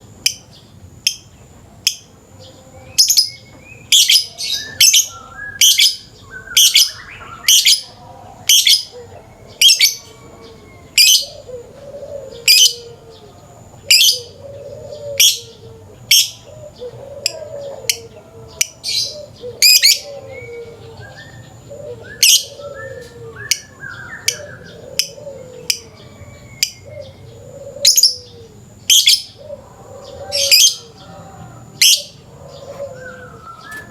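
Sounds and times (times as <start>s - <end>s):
low wavering bird call: 2.4s - 33.9s.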